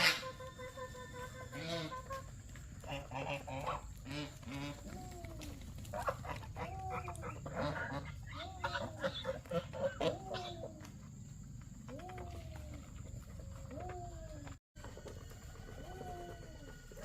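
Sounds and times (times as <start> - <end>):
geese honking: 0.0 - 5.0, 5.8 - 10.8.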